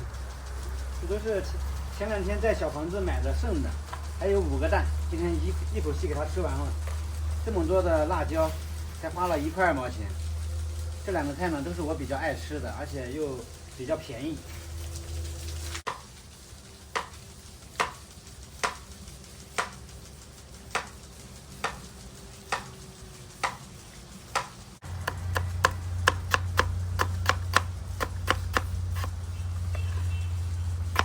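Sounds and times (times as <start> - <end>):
low steady hum: 0.0 - 31.0
knife chopping on cutting board: 24.4 - 29.2.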